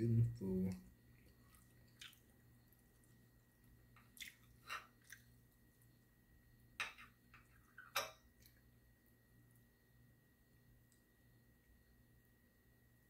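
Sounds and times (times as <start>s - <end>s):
faint steady hum: 0.0s - 13.0s
person chewing steak: 1.2s - 3.2s, 3.9s - 5.4s.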